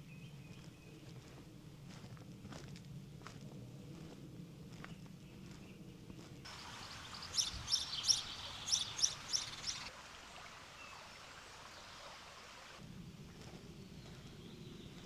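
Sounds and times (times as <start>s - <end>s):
songbird chirping: 6.5s - 12.3s
outdoor background hiss: 6.5s - 15.0s.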